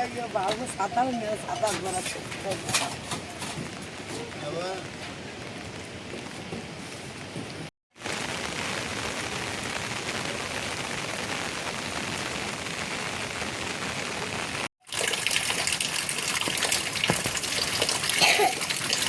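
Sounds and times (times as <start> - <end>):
steady rain falling: 0.0 - 14.7
water gushing: 8.0 - 19.0.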